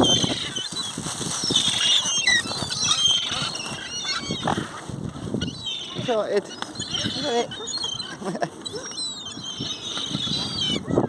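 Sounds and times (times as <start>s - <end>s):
birds squealing and squawking: 0.0s - 11.0s.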